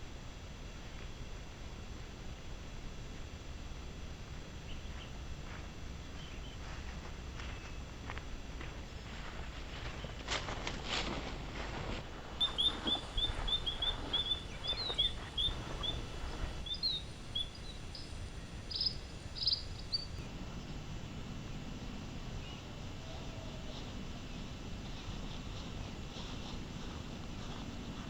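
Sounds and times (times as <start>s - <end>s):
low wind noise: 0.0s - 28.0s
small bird chirping: 12.4s - 20.2s.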